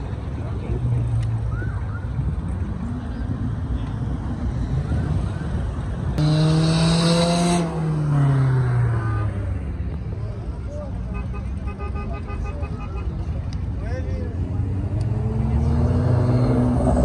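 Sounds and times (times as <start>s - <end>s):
road traffic noise: 0.0s - 17.0s
car accelerating past: 14.6s - 17.0s.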